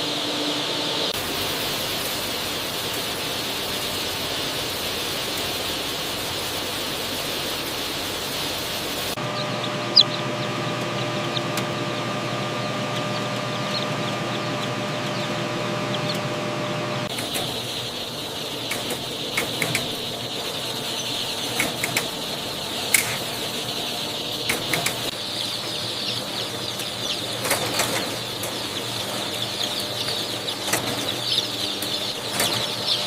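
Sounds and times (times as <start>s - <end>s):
chicks peeping: 1.8s - 33.0s
sharp clicks and knocks: 18.7s - 20.0s, 22.9s - 23.3s.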